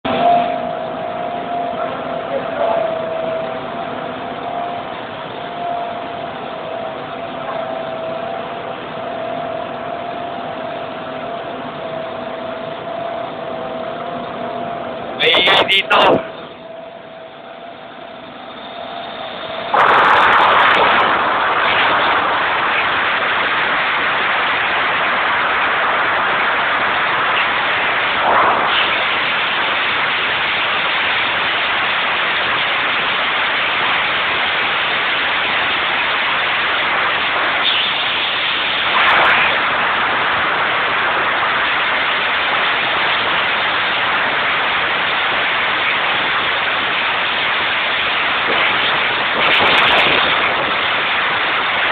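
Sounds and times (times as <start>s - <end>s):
engine-room machinery running: 0.0s - 51.9s.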